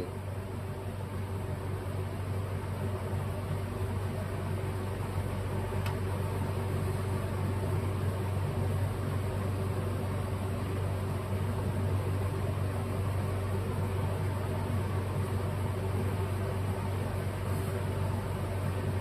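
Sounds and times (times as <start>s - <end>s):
low machine hum with hiss: 0.0s - 19.0s
faint click: 5.8s - 6.0s.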